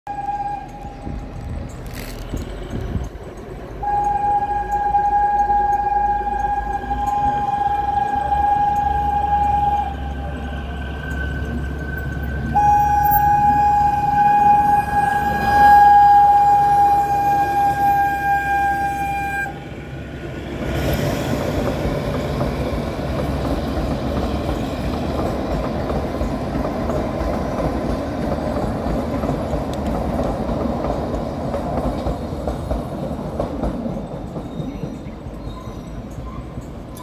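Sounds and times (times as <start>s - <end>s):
locomotive horn: 0.1s - 1.4s, 3.8s - 19.8s
train coaches rumbling on track: 0.1s - 37.0s.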